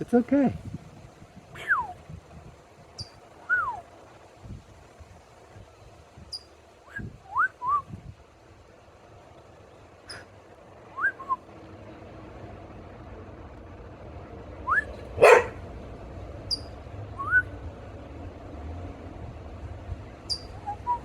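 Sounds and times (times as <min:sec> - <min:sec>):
songbird chirping: 0:02.9 - 0:04.0, 0:16.4 - 0:17.6, 0:20.1 - 0:21.0
dog bark: 0:15.1 - 0:15.6.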